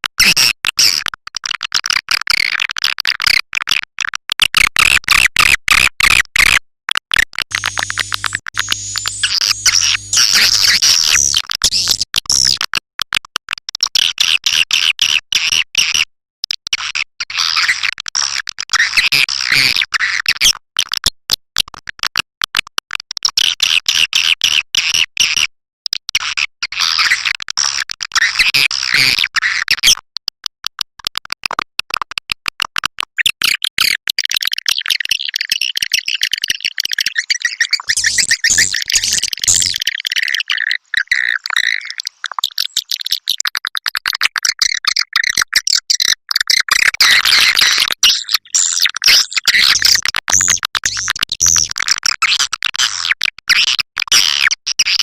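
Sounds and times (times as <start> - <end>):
swiftlets twittering and chirping: 7.5 - 11.4, 36.3 - 43.2.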